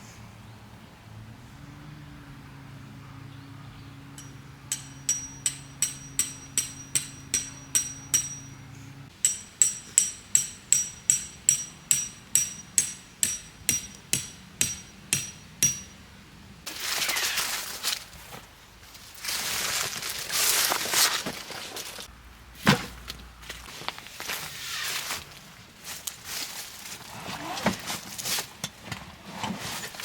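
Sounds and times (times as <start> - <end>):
hammer striking metal tent peg: 4.2 - 8.6, 9.2 - 16.0.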